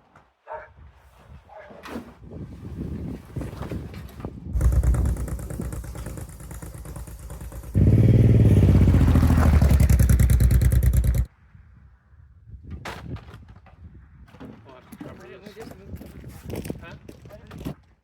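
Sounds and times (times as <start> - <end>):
engine running with rapid pulse: 4.6 - 11.3.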